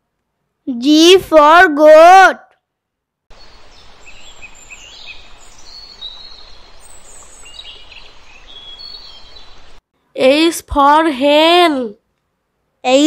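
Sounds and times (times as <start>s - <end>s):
steady background hiss: 3.1s - 13.0s
small birds chirping: 3.3s - 9.8s.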